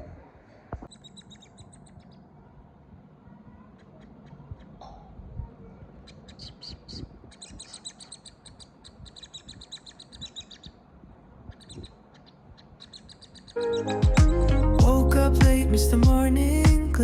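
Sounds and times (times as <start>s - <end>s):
young bird chirping: 0.9s - 2.3s, 6.0s - 10.8s, 11.5s - 14.8s.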